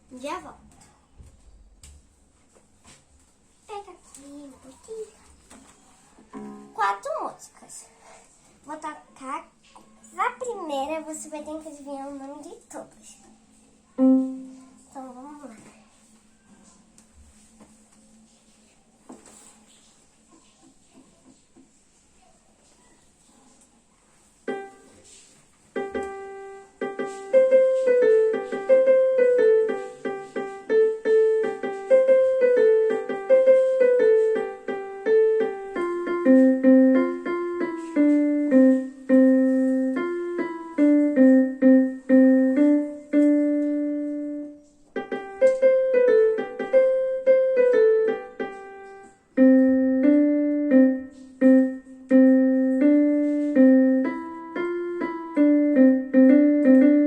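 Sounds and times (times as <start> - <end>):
piano keyboard melody: 6.3 - 7.2, 14.0 - 15.4, 24.4 - 57.0.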